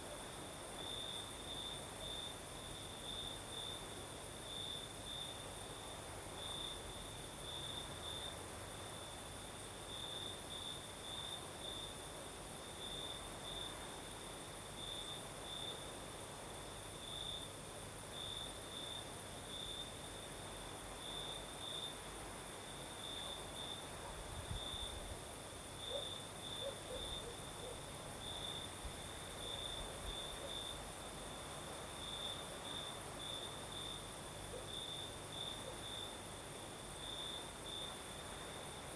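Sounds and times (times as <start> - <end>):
cricket chirping: 0.0 - 38.9
high-pitched insect hiss: 18.2 - 34.1.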